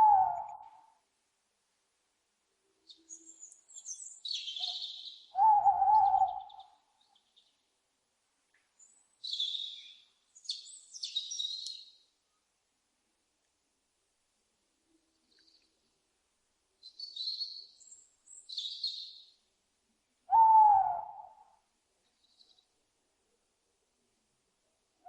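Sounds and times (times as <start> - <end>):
owl hooting: 0.0 - 0.9, 4.5 - 6.8, 20.3 - 21.6.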